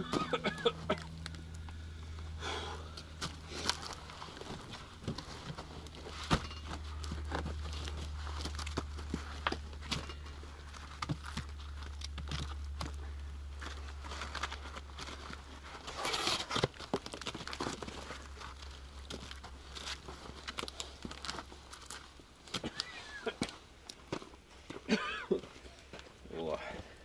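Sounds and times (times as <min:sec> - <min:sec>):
crunching rustle: 0:02.8 - 0:26.2.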